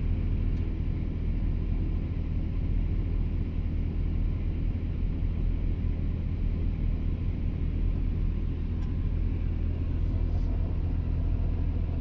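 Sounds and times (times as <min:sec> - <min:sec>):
diesel engine low drone: 0:00.0 - 0:12.0.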